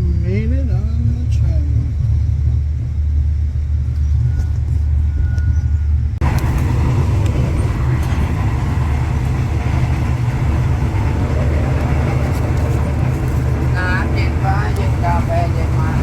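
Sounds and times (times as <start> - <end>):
moving vehicle rumble: 0.0 - 16.0
hissy running noise: 6.2 - 16.0.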